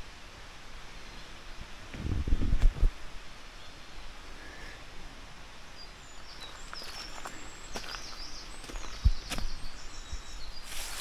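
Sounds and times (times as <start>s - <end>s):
small bird chirping: 5.7s - 11.0s
footsteps on dry leaves: 6.3s - 9.8s, 10.5s - 11.0s.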